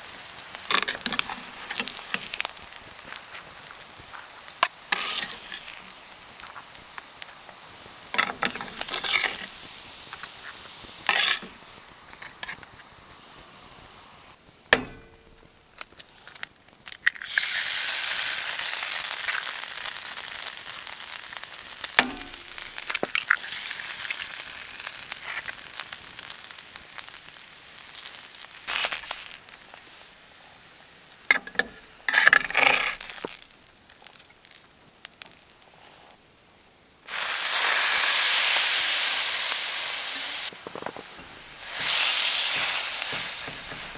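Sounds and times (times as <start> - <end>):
food sizzling in a pan: 0.0 - 43.9
knocks and scrapes: 40.5 - 43.9.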